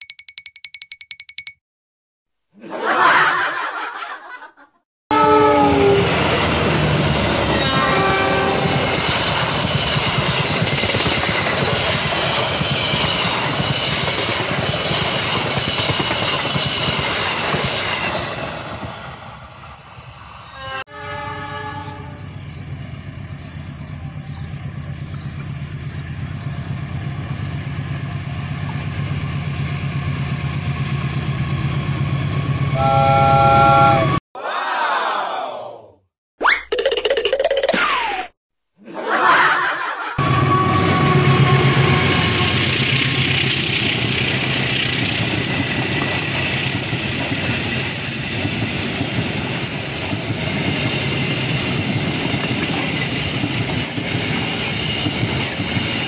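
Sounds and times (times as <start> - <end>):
train horn blasts: 5.1 - 6.3, 7.4 - 9.0, 20.5 - 22.3, 32.6 - 34.2, 40.2 - 42.7
diesel locomotive approaching: 5.1 - 34.2, 40.2 - 56.0
train coaches rumbling on rails: 5.6 - 20.8, 21.7 - 34.2, 39.7 - 56.0.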